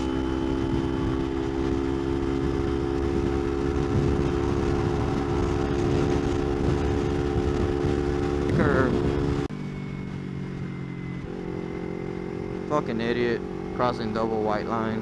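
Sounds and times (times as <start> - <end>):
wind rumble on microphone: 0.0 - 9.5
motorcycle engine cruising: 0.0 - 15.0.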